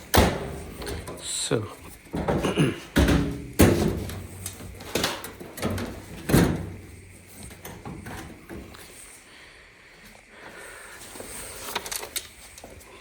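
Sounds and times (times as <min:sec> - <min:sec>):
knocks and clunks of dryer panels: 0:00.0 - 0:01.3, 0:01.9 - 0:08.7.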